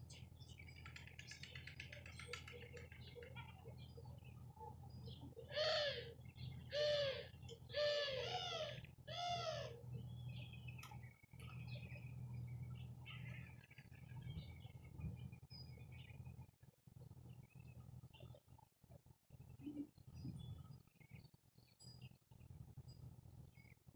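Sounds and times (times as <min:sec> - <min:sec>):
steady low hum: 0:00.0 - 0:23.9
loud drawn-out bird calls: 0:05.4 - 0:09.9.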